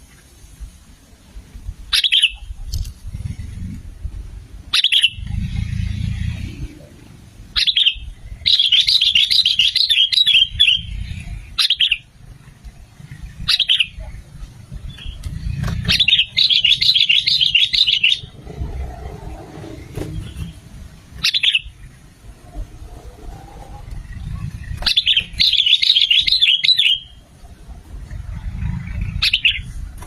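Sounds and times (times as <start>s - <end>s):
bulbul chattering song: 1.9s - 3.6s, 4.6s - 18.9s, 20.0s - 22.6s, 23.5s - 29.9s
low rumble: 2.6s - 8.5s, 18.2s - 25.4s, 27.1s - 30.0s.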